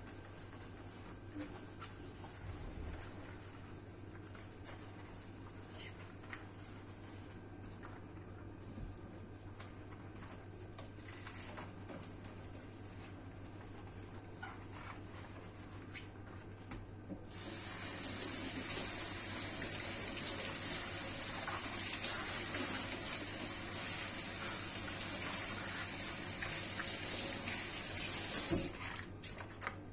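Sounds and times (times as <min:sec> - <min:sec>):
tap water running into sink: 0:17.3 - 0:28.8.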